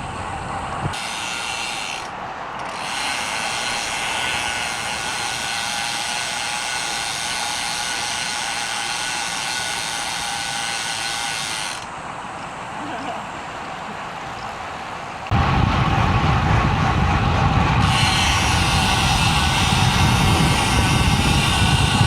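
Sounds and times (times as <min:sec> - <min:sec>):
bicycle freewheel ratchet clicking: 0:17.8 - 0:22.0.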